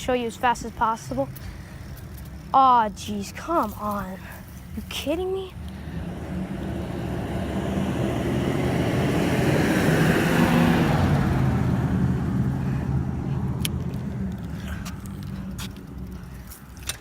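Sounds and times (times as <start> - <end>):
vehicle driving past: 5.7 - 16.3.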